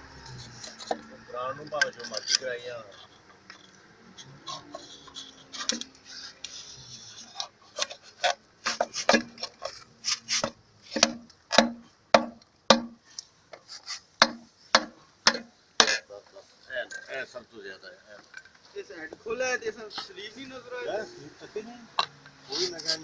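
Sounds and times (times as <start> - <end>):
hand tool scraping metal: 0.2 - 11.8, 13.6 - 14.4, 22.5 - 23.0
knocks on metal: 11.0 - 13.0, 14.2 - 15.9.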